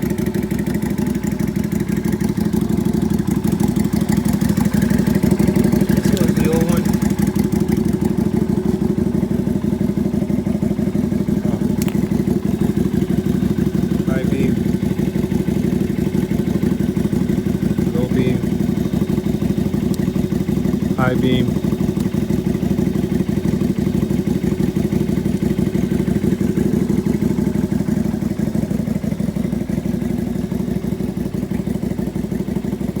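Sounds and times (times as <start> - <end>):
motorcycle engine idling: 0.0 - 33.0
sharp click: 11.8 - 12.1.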